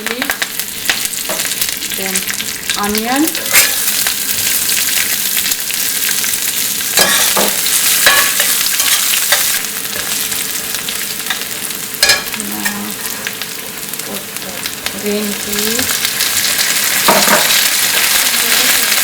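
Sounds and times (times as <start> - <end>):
onion sizzling in hot oil: 0.0 - 19.0
spatula scraping a pan: 3.3 - 5.1, 7.0 - 10.3.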